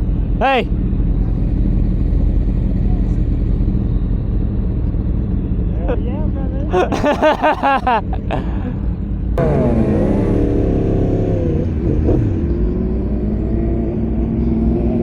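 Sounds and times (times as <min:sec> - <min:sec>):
motorcycle engine rumbling: 0:09.4 - 0:13.4
higher engine note: 0:09.4 - 0:15.0.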